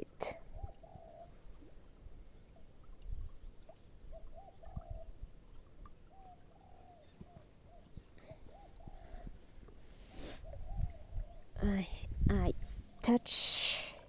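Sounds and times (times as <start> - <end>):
high-pitched insect trill: 10.1 - 14.0.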